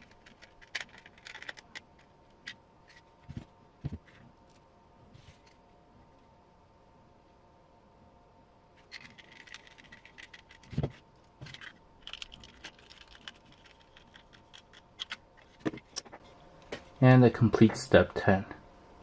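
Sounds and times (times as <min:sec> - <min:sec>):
plastic parts clicking and scraping: 0:00.0 - 0:04.3, 0:08.8 - 0:16.2.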